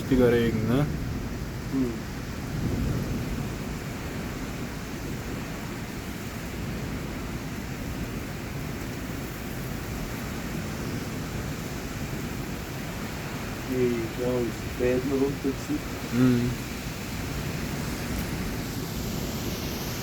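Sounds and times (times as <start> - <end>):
heavy rain in strong wind: 0.0 - 20.0.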